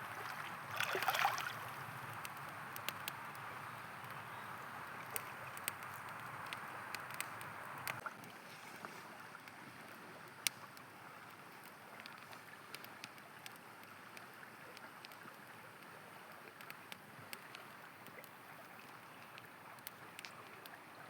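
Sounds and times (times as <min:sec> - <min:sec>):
campfire crackling and popping: 0:00.0 - 0:08.4, 0:09.0 - 0:21.0
river flowing: 0:00.0 - 0:16.2.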